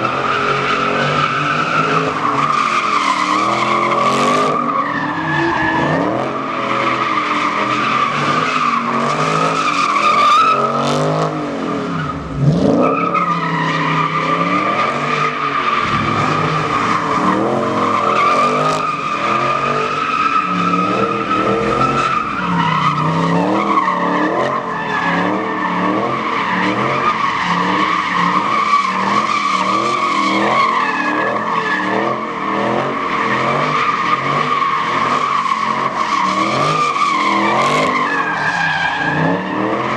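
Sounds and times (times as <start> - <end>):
engine revving: 15.8 - 19.8.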